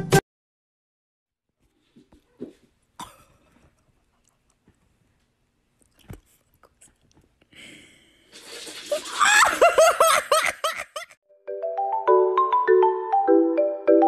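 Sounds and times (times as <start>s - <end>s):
bouncy marimba music: 11.4s - 14.0s.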